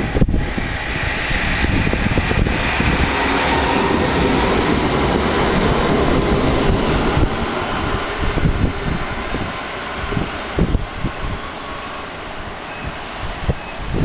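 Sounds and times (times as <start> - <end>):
faint high whine: 0.0 - 14.0
tram rumbling on rails: 0.0 - 14.0.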